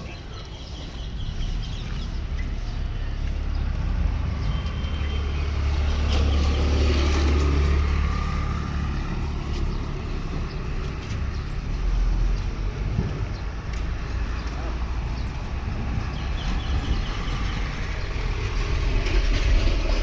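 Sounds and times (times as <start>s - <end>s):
passing road vehicle rumble: 0.0s - 20.0s.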